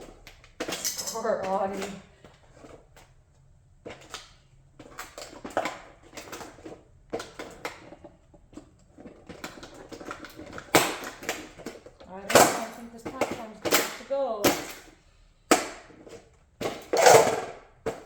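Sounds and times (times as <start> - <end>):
model car parts cracking and snapping: 0.0 - 1.0, 3.9 - 14.0.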